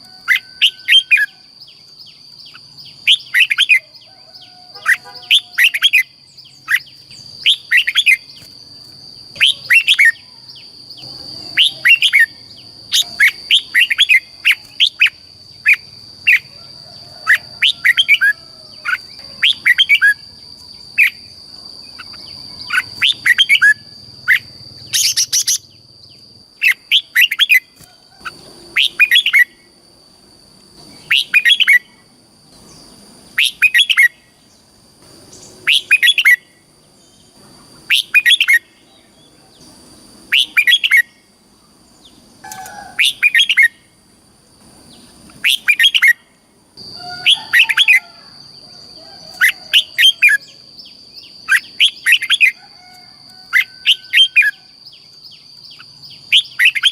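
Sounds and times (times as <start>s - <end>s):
bird chirping song: 0.0s - 29.7s, 30.8s - 43.9s, 44.8s - 56.9s.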